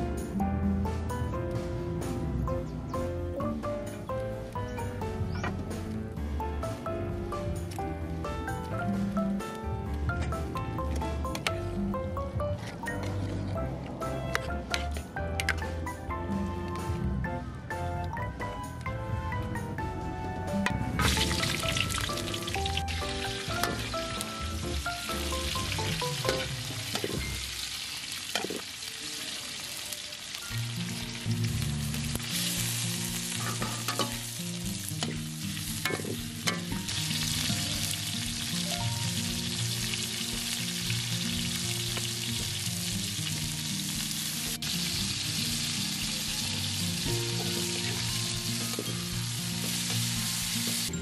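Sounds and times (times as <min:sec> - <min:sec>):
food sizzling in a pan: 0:21.0 - 0:51.0.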